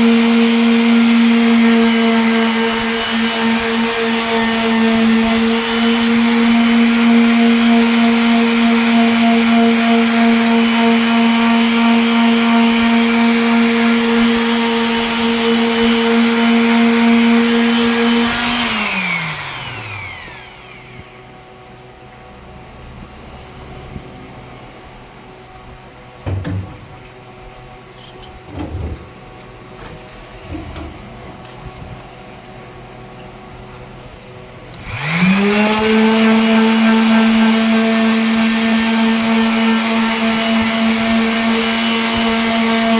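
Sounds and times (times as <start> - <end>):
electric sander running: 0.0 - 25.4, 34.7 - 42.9.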